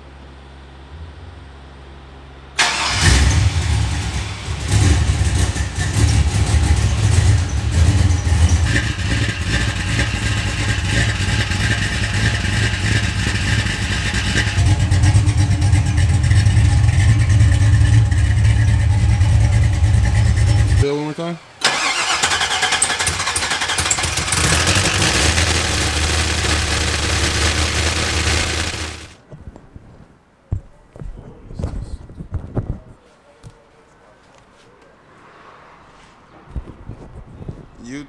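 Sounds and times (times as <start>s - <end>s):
engine rev: 2.6s - 20.8s, 21.6s - 29.2s
car engine starting and running: 2.6s - 29.2s.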